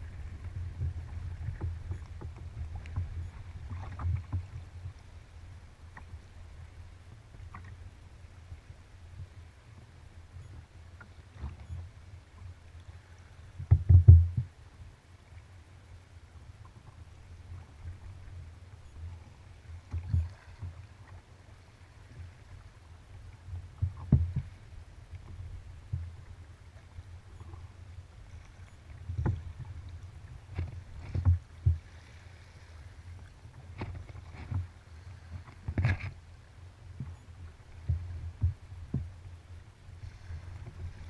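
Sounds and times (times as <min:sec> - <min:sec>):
water rumbling against hull: 0:00.0 - 0:41.0
paddle knocks and splashes: 0:00.1 - 0:04.6, 0:13.6 - 0:14.5, 0:23.8 - 0:24.6, 0:30.5 - 0:32.0, 0:33.6 - 0:36.2, 0:37.8 - 0:39.1.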